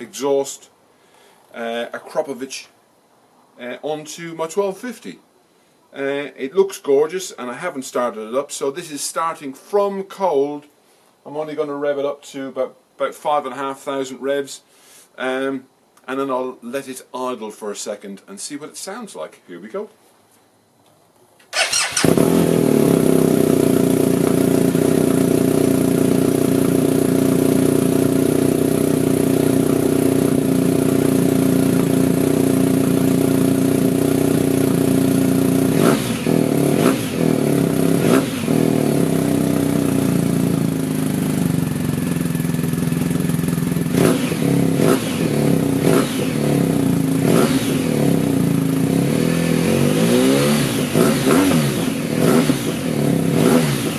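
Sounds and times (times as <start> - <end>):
motorcycle engine idling and revving: 21.5 - 53.9
motorcycle engine starting: 21.5 - 53.9.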